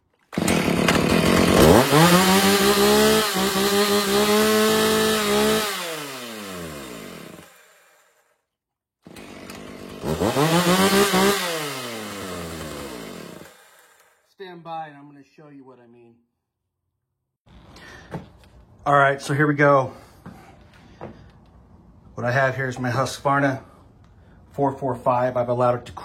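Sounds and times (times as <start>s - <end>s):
chainsaw revving: 0.2s - 8.3s, 9.0s - 14.2s.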